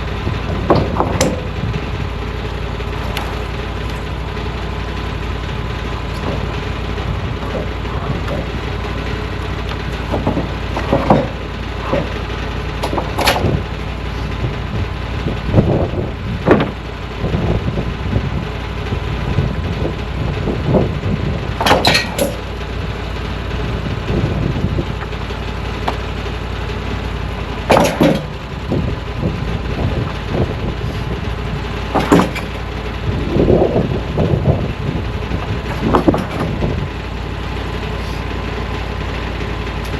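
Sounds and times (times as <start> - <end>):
engine idling: 0.0 - 39.9
wood or metal clanking: 0.4 - 1.9, 2.8 - 5.0, 5.6 - 13.8, 16.4 - 16.8, 21.5 - 22.8, 25.8 - 26.1, 27.5 - 28.8, 31.7 - 38.4.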